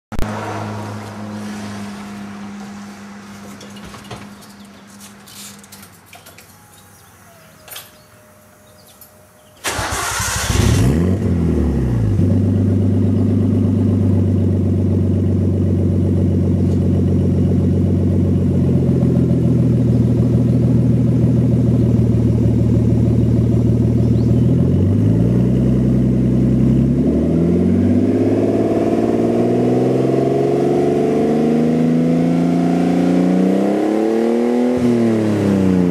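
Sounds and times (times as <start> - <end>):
car engine starting and idling: 3.4 - 28.4
car engine revving: 9.6 - 35.9.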